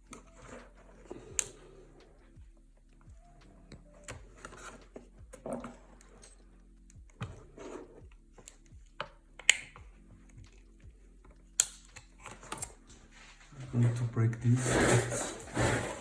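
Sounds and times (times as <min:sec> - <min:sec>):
sharp plastic snaps: 0:11.5 - 0:12.8.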